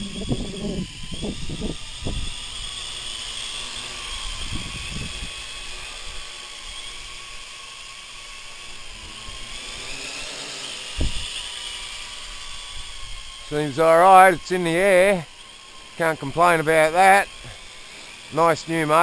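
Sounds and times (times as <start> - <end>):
wind buffeting microphone: 0.0 - 2.9, 4.1 - 5.6, 10.9 - 11.4
quadcopter motors whining: 0.0 - 19.0.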